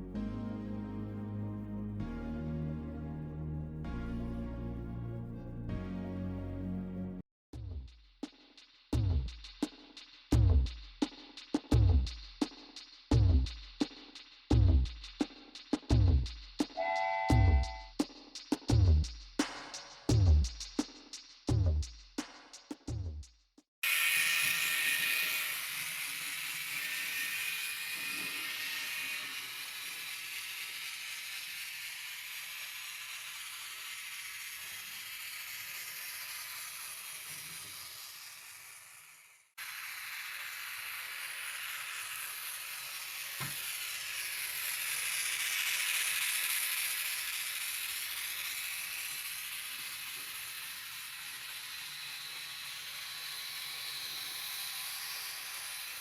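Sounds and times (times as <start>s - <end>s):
spray paint hissing: 23.8s - 56.0s.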